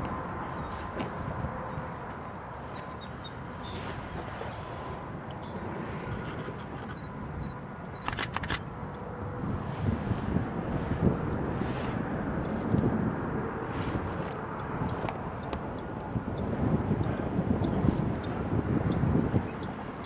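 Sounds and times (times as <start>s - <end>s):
wind buffeting microphone: 0.0s - 20.0s
sharp clicks: 7.9s - 8.7s.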